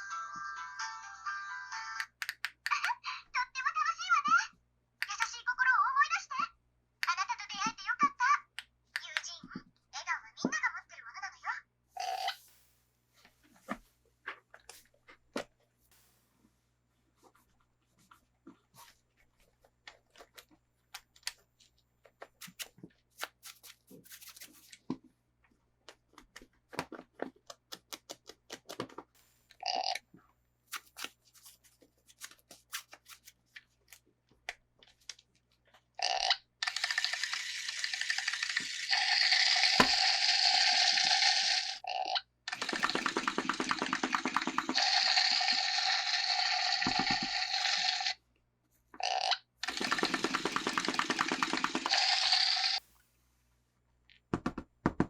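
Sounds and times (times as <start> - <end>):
packaging clicks and taps: 25.8 - 29.1.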